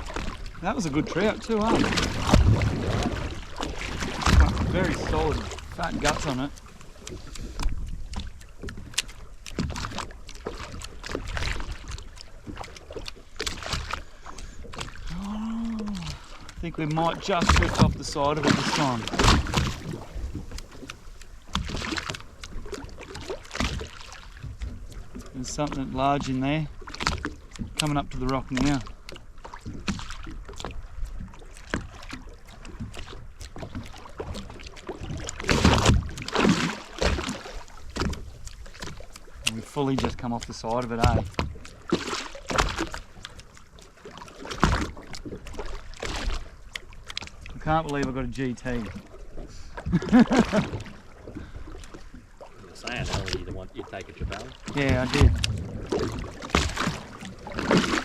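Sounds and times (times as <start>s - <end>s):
water splashing against boat hull: 0.0s - 58.0s
wind on microphone: 52.9s - 58.0s.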